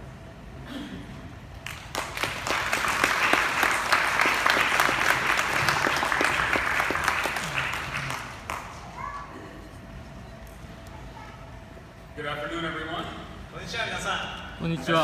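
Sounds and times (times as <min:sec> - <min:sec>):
audience applauding: 0:01.6 - 0:09.1.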